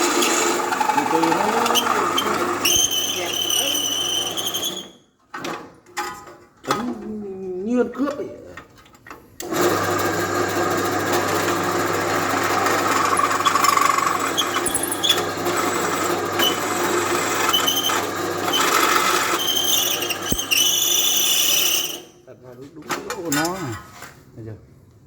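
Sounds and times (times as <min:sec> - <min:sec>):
drill press motor humming: 0:09.5 - 0:20.5
high-pitched drill whining: 0:12.9 - 0:22.2.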